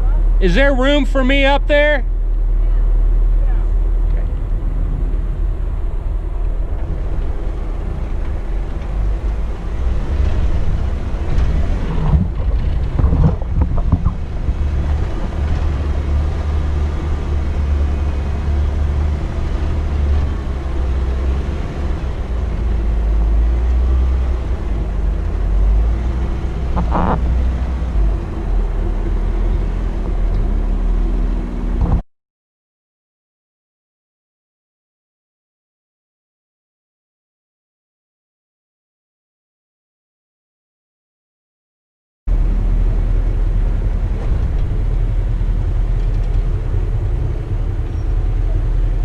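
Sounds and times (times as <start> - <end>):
engine low rumble: 0.0 - 32.0, 42.3 - 49.0.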